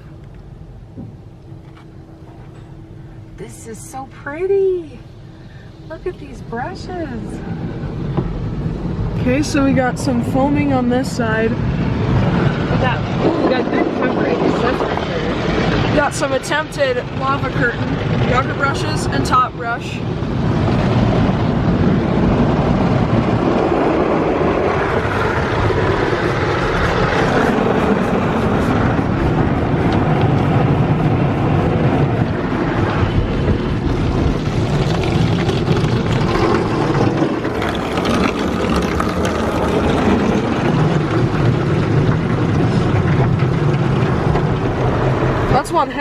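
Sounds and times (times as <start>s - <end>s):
water spraying: 21.8s - 46.0s
brushes scrubbing car body: 26.1s - 33.1s.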